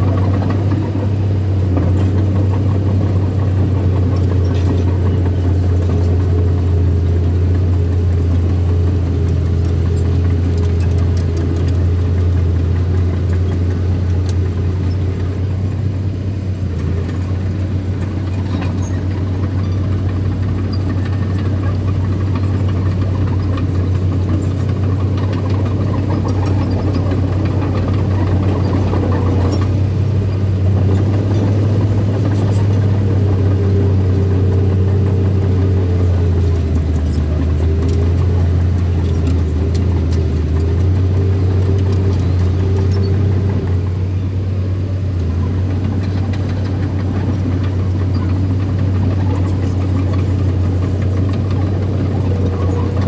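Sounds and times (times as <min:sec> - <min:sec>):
bulldozer diesel engine humming: 0:00.0 - 0:53.0.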